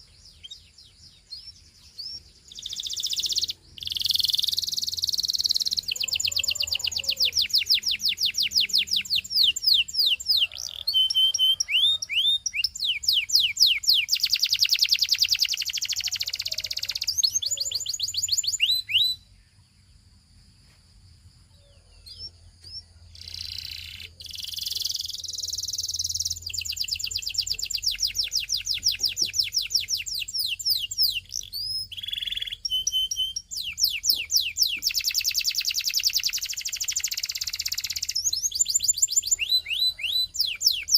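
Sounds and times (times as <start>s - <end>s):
canary singing: 0.0s - 19.4s, 21.6s - 40.9s.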